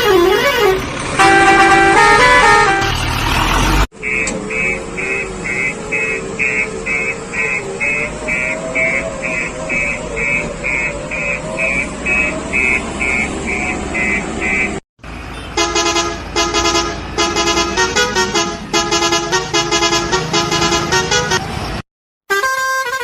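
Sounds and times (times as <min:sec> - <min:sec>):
musical vehicle horn toots: 0:00.0 - 0:03.1, 0:04.0 - 0:21.5, 0:22.3 - 0:23.0
vehicle reversing beeper: 0:04.0 - 0:14.8.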